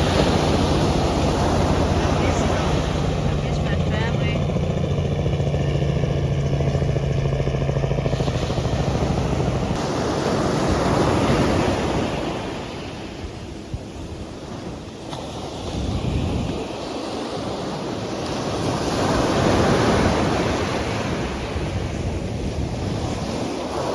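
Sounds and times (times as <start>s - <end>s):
engine hum: 0.0s - 16.7s
sea waves breaking on beach: 0.0s - 23.9s.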